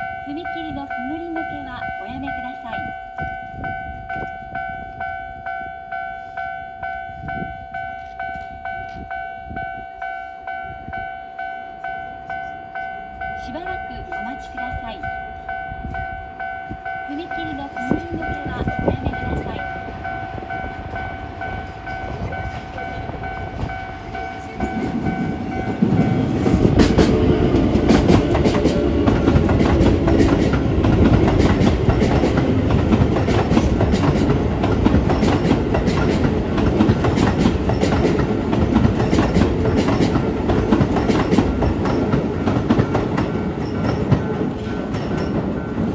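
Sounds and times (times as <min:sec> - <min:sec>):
level crossing alarm ringing: 0:00.0 - 0:45.9
train wheels clattering over joints: 0:17.8 - 0:45.9.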